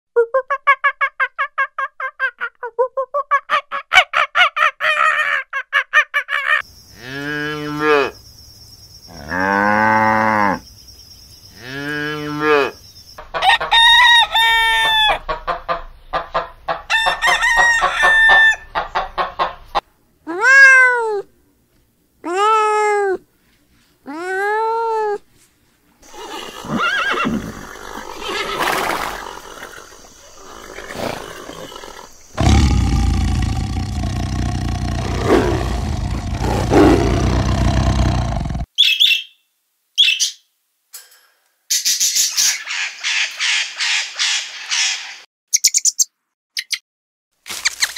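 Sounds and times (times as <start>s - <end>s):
rooster crowing: 13.4s - 15.3s, 16.9s - 18.8s
chickens clucking: 18.7s - 19.8s.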